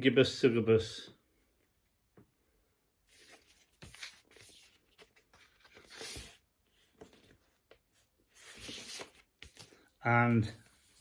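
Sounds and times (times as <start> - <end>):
rustling of record sleeve: 3.1 - 10.0.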